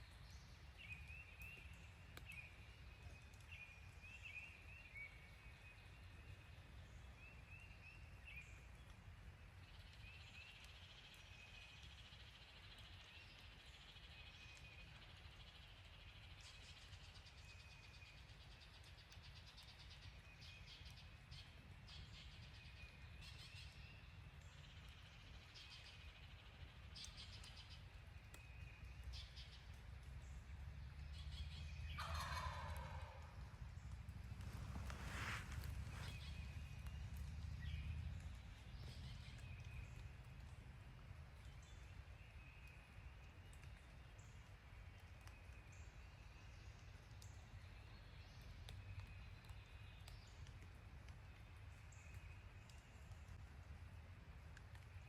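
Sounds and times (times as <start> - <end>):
small birds chirping: 0.0 - 53.9
low steady rumble: 28.9 - 41.9
wild turkey gobbling: 31.9 - 33.5.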